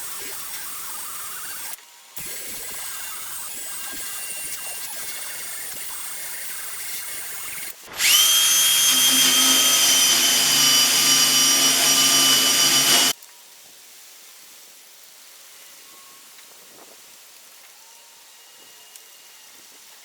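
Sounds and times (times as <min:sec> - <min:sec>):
power tool motor whine: 0:00.0 - 0:13.2.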